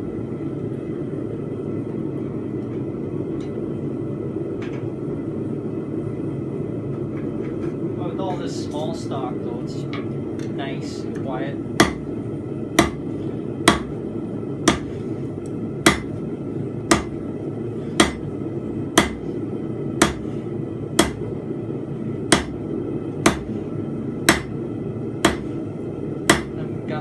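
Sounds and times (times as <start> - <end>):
gas forge running: 0.9 - 27.0
hammer striking steel on anvil: 11.8 - 12.1, 12.8 - 13.0, 13.7 - 14.0, 14.7 - 15.0, 15.8 - 16.1, 16.9 - 17.2, 18.0 - 18.3, 19.0 - 19.2, 20.0 - 20.3, 21.0 - 21.2, 22.3 - 22.6, 23.2 - 23.5, 24.3 - 24.5, 25.2 - 25.5, 26.3 - 26.6.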